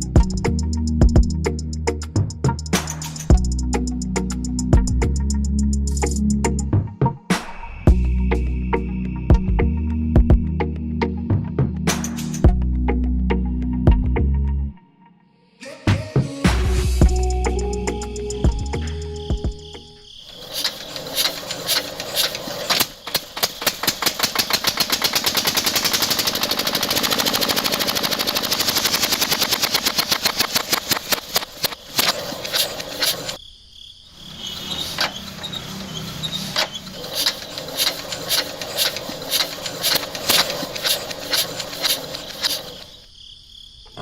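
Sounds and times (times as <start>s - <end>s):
rapid mechanical clatter: 20.3s - 33.4s, 34.5s - 43.0s
uneven clicking: 20.3s - 33.4s, 34.9s - 43.1s.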